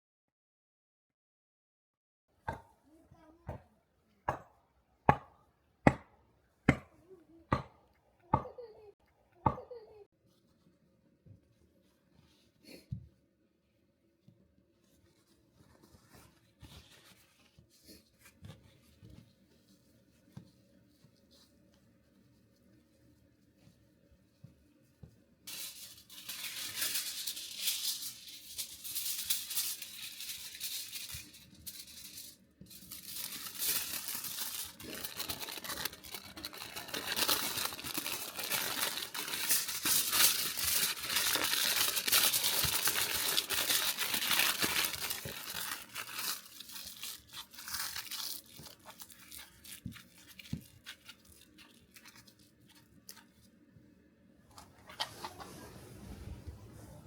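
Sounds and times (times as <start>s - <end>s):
aluminium foil crinkling: 25.5s - 53.6s.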